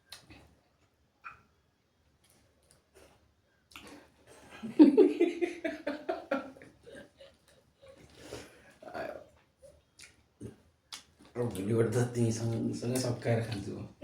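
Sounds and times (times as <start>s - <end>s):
mouth and eating clicks: 0.1s - 0.3s, 3.7s - 4.0s, 9.8s - 11.4s
person laughing: 4.6s - 7.2s.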